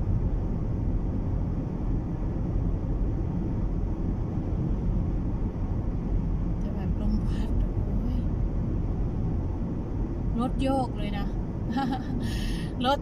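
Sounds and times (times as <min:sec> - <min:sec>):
wind buffeting car body: 0:00.0 - 0:06.7, 0:07.6 - 0:10.4
car cabin rumble: 0:00.0 - 0:13.0.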